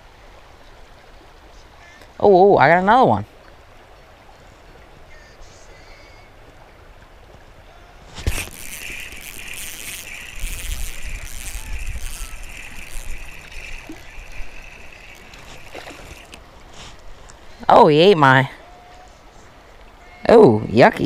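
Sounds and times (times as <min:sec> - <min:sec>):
running stream: 0:00.0 - 0:21.0
water splashing and sloshing: 0:06.3 - 0:17.7.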